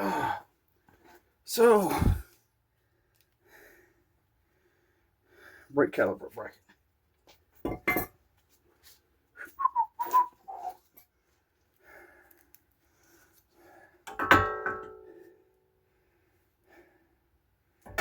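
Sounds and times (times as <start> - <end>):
gliding whistle-like notes: 9.5 - 10.8.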